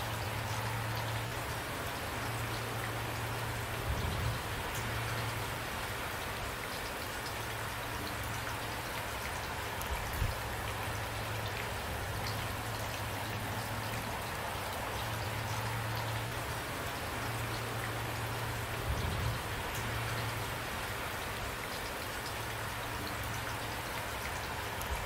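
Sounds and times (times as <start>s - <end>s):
rain falling on a surface: 0.0s - 25.0s.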